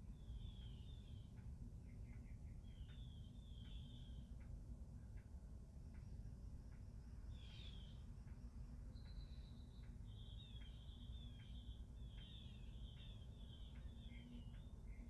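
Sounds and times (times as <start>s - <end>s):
faint birdsong chirps: 0.0s - 15.0s
steady low rumble: 0.0s - 15.0s.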